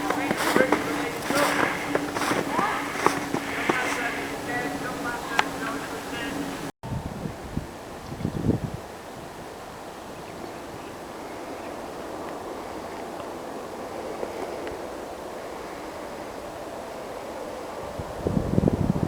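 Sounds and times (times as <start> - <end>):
wind rushing over microphone: 0.0 - 9.6, 17.8 - 19.0.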